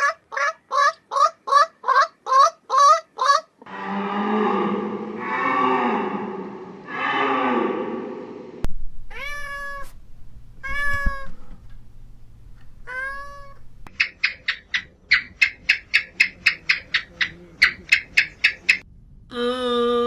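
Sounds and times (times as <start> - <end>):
cow mooing: 3.6 - 8.2
cat meowing: 9.1 - 10.0, 10.6 - 11.5, 12.8 - 13.6.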